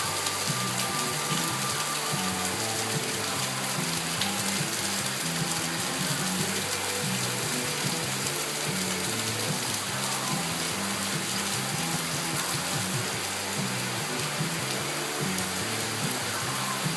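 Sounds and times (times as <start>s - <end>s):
low bass line music: 0.0s - 16.9s
steady rain falling: 0.0s - 16.9s.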